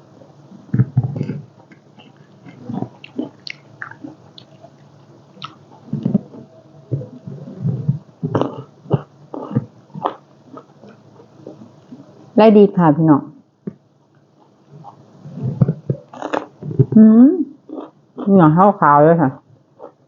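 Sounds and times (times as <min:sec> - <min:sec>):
person chewing and slurping: 0:01.1 - 0:12.0.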